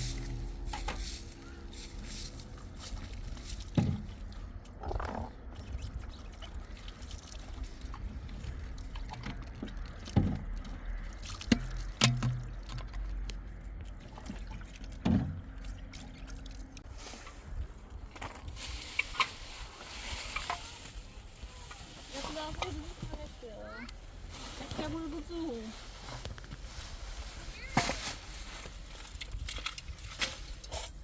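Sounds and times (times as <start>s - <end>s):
water sounds: 0.0s - 25.6s.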